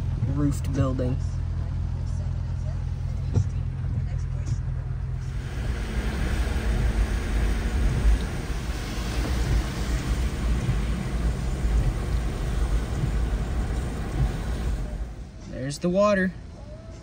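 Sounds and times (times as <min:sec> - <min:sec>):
engine and tyres rumbling: 0:00.0 - 0:17.0
hiss of rain and road spray: 0:05.3 - 0:15.2.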